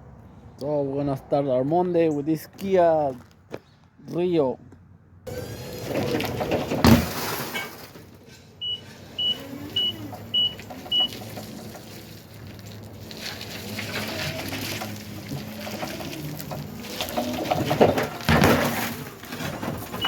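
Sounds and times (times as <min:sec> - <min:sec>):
background clatter: 0:05.3 - 0:20.0.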